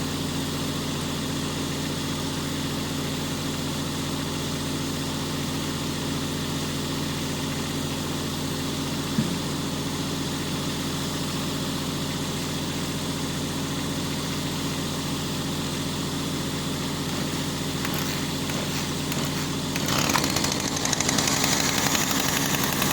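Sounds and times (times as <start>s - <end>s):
motor humming: 16.8s - 22.9s.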